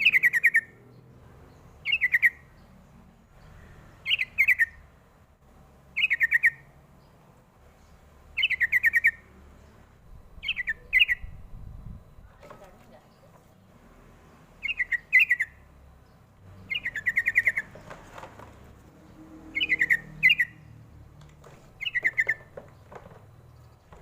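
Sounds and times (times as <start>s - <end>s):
bulbul singing: 0.0s - 5.1s, 5.8s - 13.6s, 14.4s - 18.0s, 19.0s - 21.1s, 21.7s - 24.0s.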